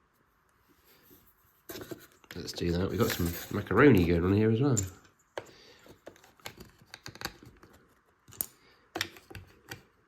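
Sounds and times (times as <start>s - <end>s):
plastic parts clicking: 4.8s - 10.0s.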